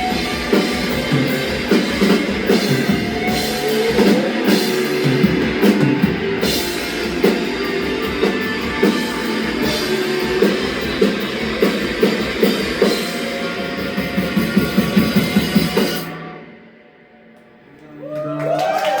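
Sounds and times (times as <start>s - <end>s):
rising tones: 0.0s - 13.7s
rock band playing: 0.0s - 16.8s.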